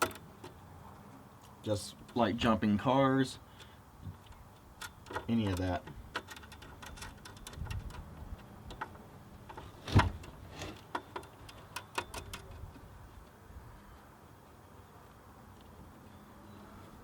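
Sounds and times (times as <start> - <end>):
metal hardware and tools clicking: 4.2 - 9.6, 10.2 - 12.6.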